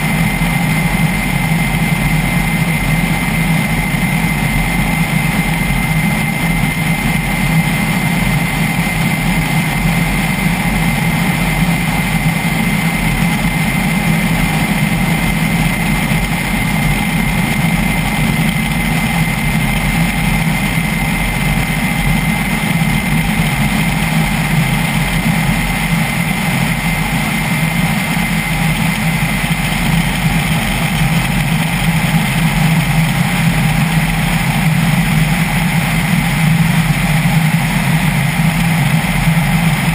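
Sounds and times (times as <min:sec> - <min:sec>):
helicopter engine and rotor drone: 0:00.0 - 0:39.9
high turbine whine: 0:00.0 - 0:39.9.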